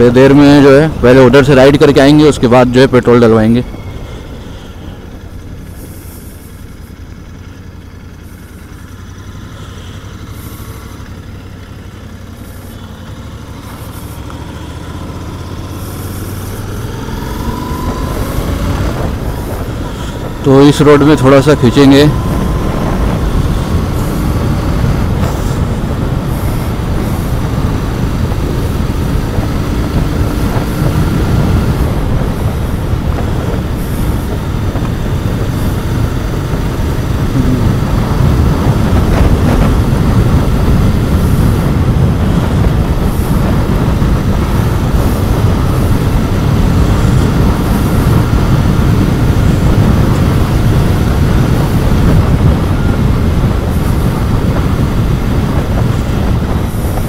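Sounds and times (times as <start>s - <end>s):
motorcycle engine accelerating: 0.0s - 57.0s
wind on microphone: 15.1s - 57.0s.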